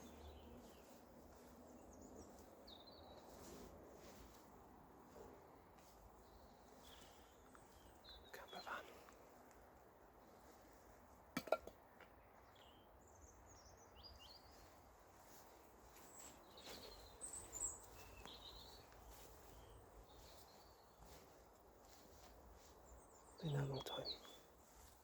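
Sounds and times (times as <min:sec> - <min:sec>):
faint bird chirps: 0:06.2 - 0:09.1, 0:21.9 - 0:24.9.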